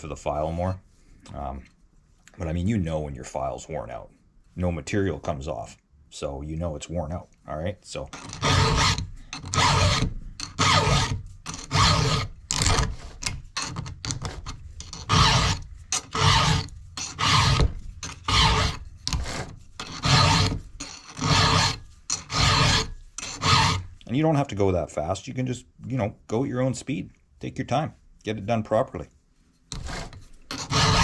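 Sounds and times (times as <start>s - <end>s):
file rasping on chainsaw chain: 8.1s - 24.0s, 29.7s - 31.0s.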